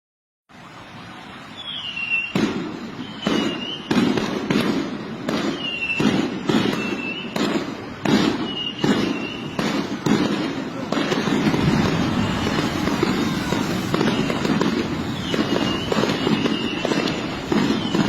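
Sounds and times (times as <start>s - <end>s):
short falling whistles: 3.0s - 3.9s, 8.4s - 9.6s, 13.1s - 18.0s
sharp bangs: 6.0s - 18.0s
rumbling background: 11.4s - 16.0s.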